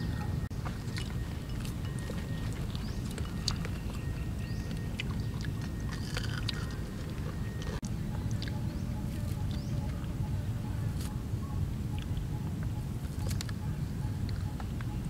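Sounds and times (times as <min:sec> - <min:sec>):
faint chewing: 0:00.1 - 0:10.2, 0:11.9 - 0:13.6.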